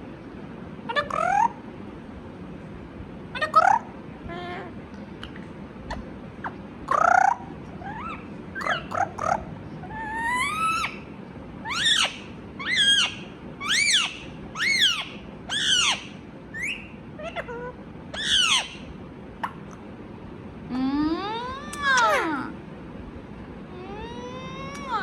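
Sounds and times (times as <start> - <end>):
parrot calling: 0.9 - 1.6, 5.9 - 19.6, 23.7 - 25.0
parrot chirps: 5.2 - 17.5, 18.1 - 19.6.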